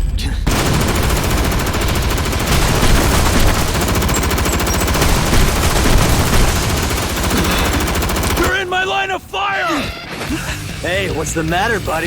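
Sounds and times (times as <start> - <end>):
gatling gun rapid firing: 0.5 - 8.8.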